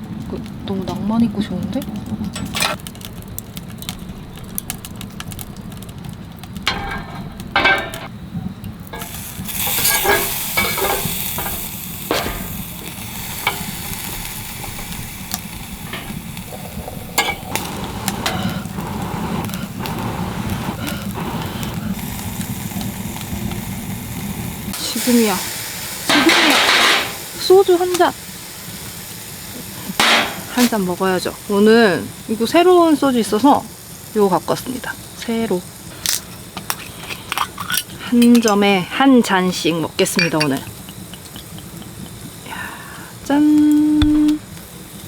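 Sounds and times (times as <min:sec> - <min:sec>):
meat sizzling on a grill: 0:00.0 - 0:45.0
utensils clicking and tapping: 0:09.0 - 0:13.7, 0:40.0 - 0:42.2.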